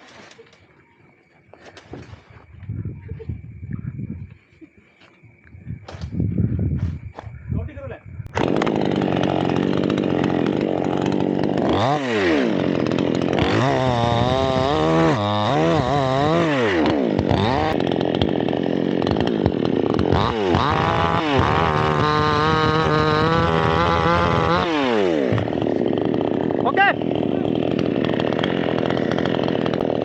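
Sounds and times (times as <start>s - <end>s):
chainsaw cutting wood: 8.3s - 30.0s.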